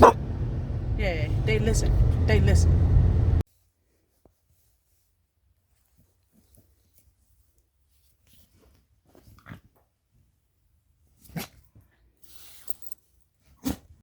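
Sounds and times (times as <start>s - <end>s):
dog barking: 0.0s - 0.2s.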